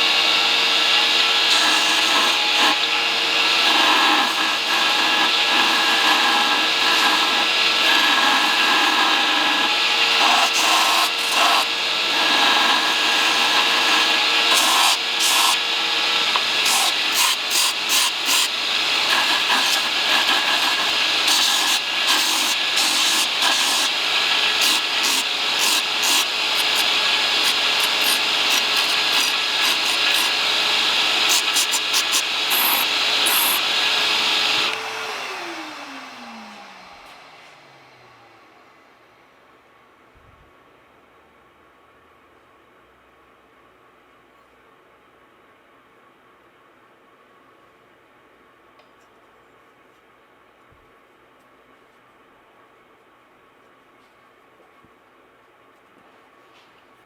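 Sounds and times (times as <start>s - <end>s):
electric grinder grinding metal: 0.0s - 37.2s.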